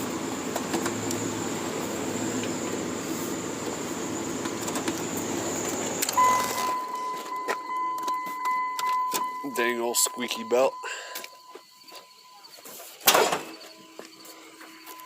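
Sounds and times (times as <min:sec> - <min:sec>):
engine idling with belt squeal: 0:00.0 - 0:15.0
electronic warning tone: 0:06.0 - 0:12.7, 0:13.5 - 0:15.0.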